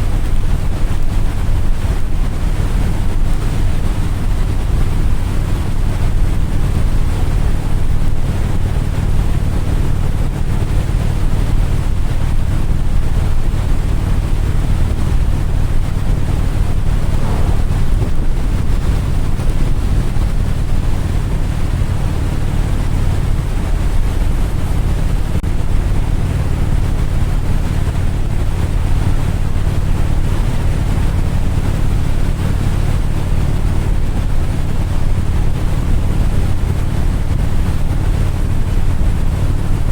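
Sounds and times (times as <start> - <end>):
low engine drone: 0.0 - 39.9
wind rushing over microphone: 10.5 - 39.9.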